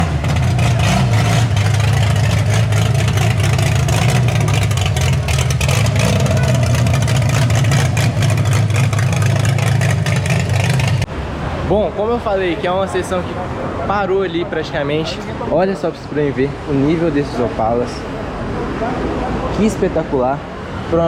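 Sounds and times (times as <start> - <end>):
car engine with loud exhaust: 0.0 - 14.0.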